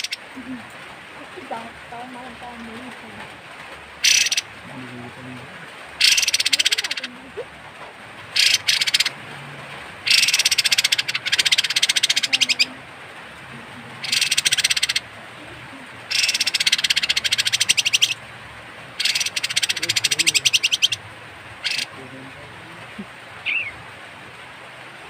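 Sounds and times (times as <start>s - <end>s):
bird rasping rattle call: 0.0s - 0.2s, 4.0s - 4.5s, 6.0s - 7.1s, 8.4s - 9.2s, 10.0s - 12.7s, 14.0s - 15.1s, 16.1s - 18.2s, 19.0s - 21.0s, 21.6s - 22.0s.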